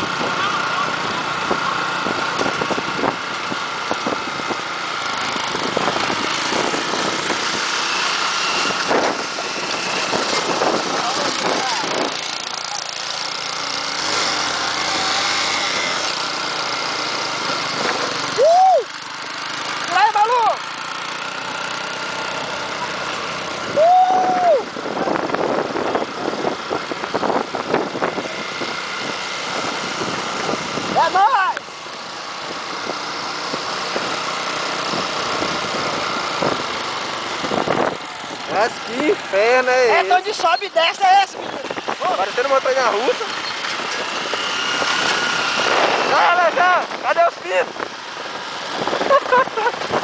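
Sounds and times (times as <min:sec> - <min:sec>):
motorcycle engine running: 0:00.0 - 0:50.0
person shouting: 0:18.4 - 0:18.9, 0:23.7 - 0:24.7.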